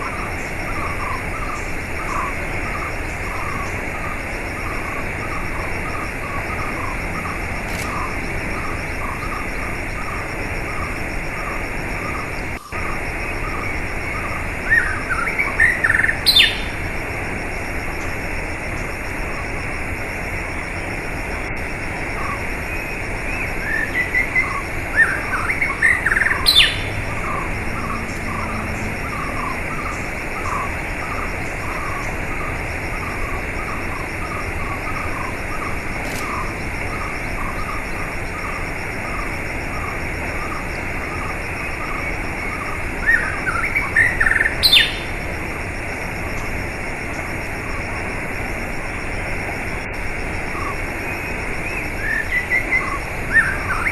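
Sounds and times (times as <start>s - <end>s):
bird chirps: 0.0s - 16.8s, 22.2s - 45.1s
bird song phrases: 0.0s - 16.8s, 22.2s - 45.1s.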